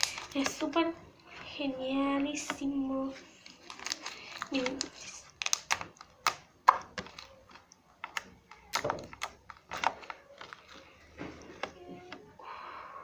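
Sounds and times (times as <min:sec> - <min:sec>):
slime clicking and popping: 0:03.7 - 0:10.8.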